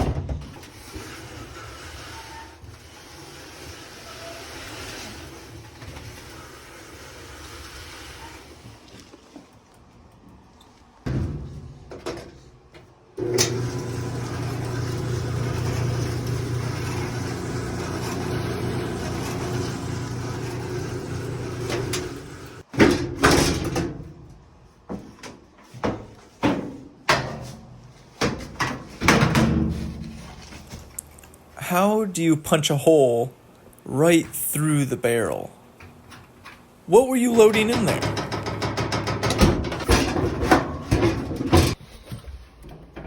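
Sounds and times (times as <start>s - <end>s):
clothes dryer humming: 13.2s - 22.7s, 31.6s - 41.8s
machine clunks and knocks: 37.5s - 41.8s.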